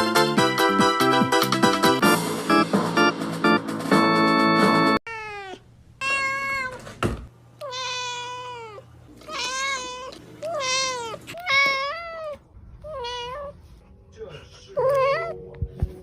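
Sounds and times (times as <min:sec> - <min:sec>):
cat meowing: 0:05.1 - 0:06.8, 0:07.6 - 0:13.7, 0:14.8 - 0:15.4.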